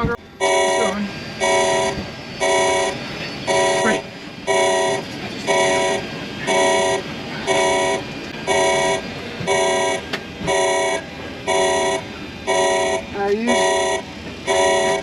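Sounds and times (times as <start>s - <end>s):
pulsing alarm horn: 0.0s - 15.0s
rushing background noise: 0.0s - 15.0s.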